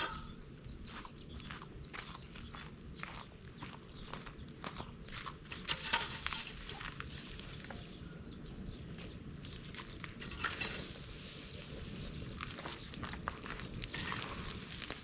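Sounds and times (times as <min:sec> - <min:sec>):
bonfire crackling and popping: 0:03.3 - 0:15.0.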